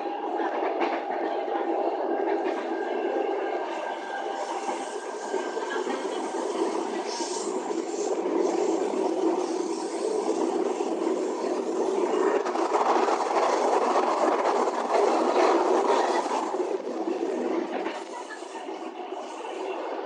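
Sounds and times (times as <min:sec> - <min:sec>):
train wheels rumbling: 0:00.0 - 0:19.6.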